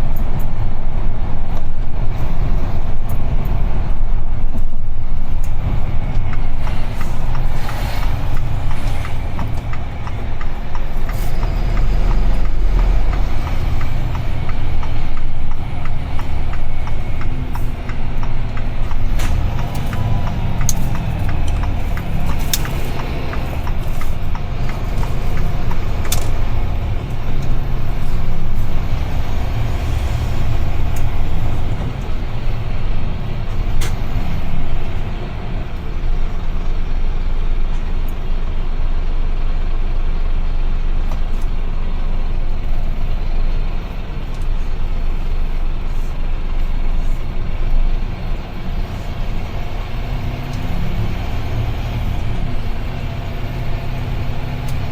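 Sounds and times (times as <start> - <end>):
truck engine and road rumble: 0.0 - 54.9
sharp clicks: 5.4 - 29.7.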